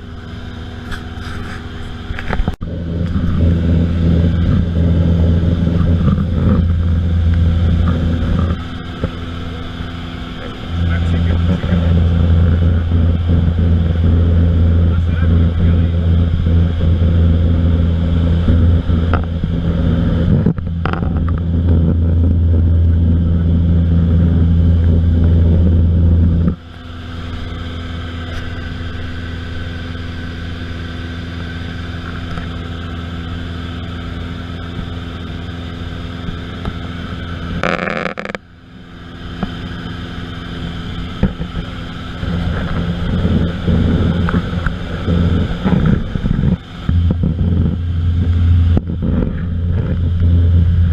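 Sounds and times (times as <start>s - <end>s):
rush of noise: 0.0s - 38.2s, 39.6s - 50.9s
aircraft engine drone: 0.0s - 50.9s.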